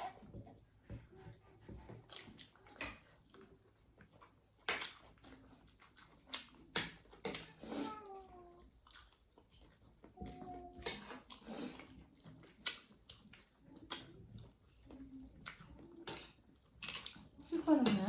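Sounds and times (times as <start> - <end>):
chewing and mouth smacks: 1.9 - 7.4, 8.6 - 10.2, 11.0 - 17.5
food crunching: 2.0 - 7.5, 8.6 - 10.1, 11.0 - 17.6.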